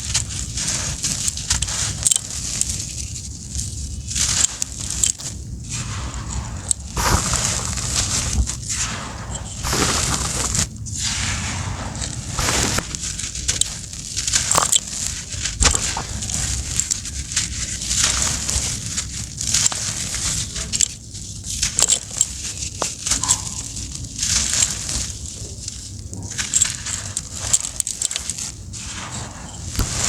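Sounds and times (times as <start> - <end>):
dry lumps being crushed: 2.3 - 8.7, 12.3 - 20.3, 29.7 - 30.0.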